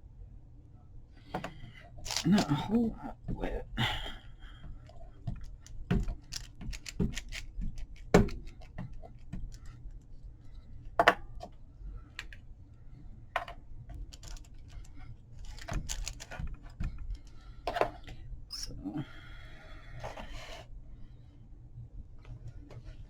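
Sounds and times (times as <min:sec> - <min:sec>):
taps and clicks of craft tools: 0:04.6 - 0:09.7.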